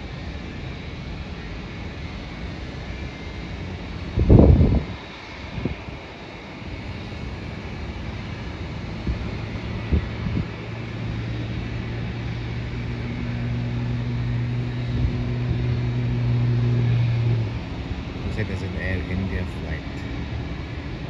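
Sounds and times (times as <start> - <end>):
low engine hum: 0.0 - 21.0
rumble of engines and traffic: 0.0 - 21.0.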